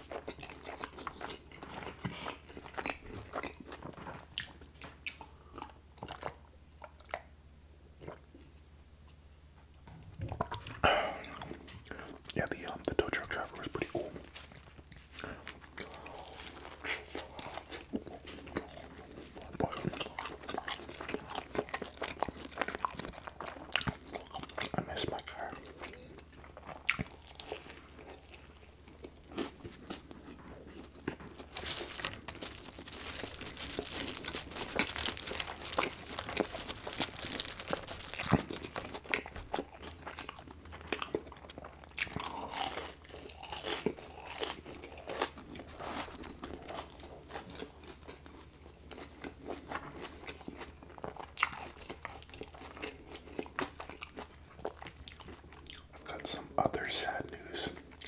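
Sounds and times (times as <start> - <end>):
crunching and chewing crispy food: 0.0 - 8.6, 10.0 - 58.0
wet mouth sounds: 10.0 - 14.2.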